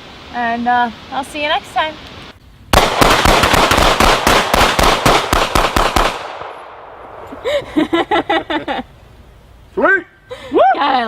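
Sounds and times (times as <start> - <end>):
rifle firing rapid shots: 2.8 - 6.5.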